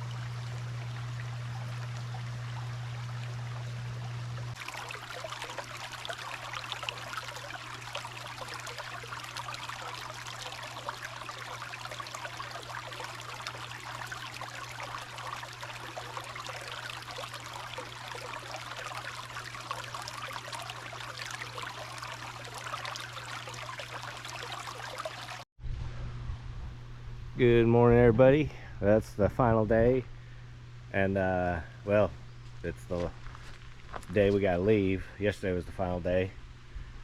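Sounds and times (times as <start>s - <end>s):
creek water trickling: 0.0s - 25.5s, 32.3s - 35.0s
steady low hum: 0.0s - 37.0s.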